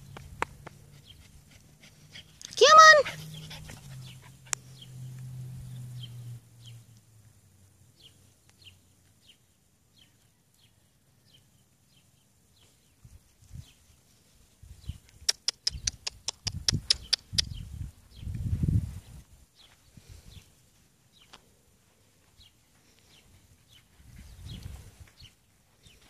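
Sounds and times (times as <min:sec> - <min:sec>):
small bird chirping: 0:14.7 - 0:20.5
sharp clicks: 0:15.2 - 0:17.6.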